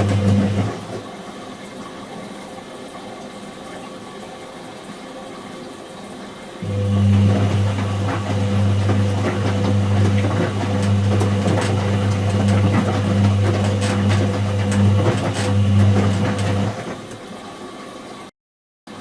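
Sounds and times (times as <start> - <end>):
washing machine humming: 0.0 - 2.3, 6.6 - 18.3.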